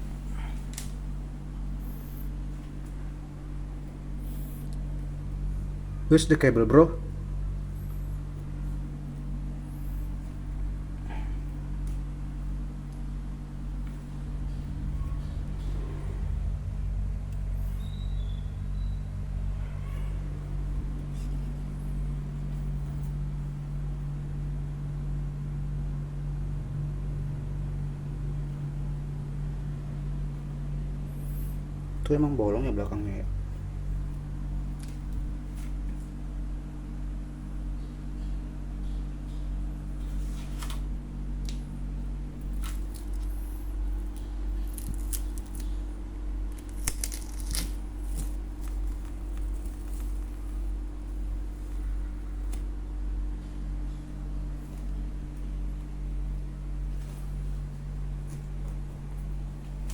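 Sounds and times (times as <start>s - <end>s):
low machine hum: 0.0s - 59.9s
packaging crinkling and tearing: 44.6s - 45.8s, 46.5s - 50.4s.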